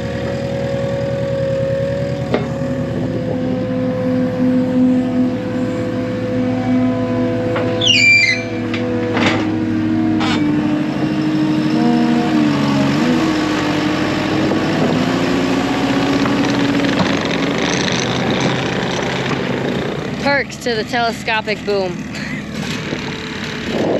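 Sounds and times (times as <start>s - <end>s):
telehandler engine running: 0.0s - 23.9s
high falling squeal: 3.8s - 8.8s.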